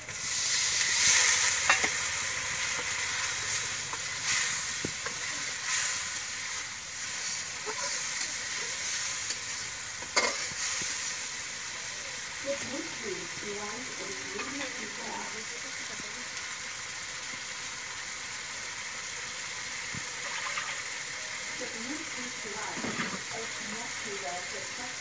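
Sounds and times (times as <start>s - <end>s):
water poured into hot oil: 0.0s - 12.4s, 16.2s - 21.6s
curry sizzling in a pan: 0.0s - 25.0s.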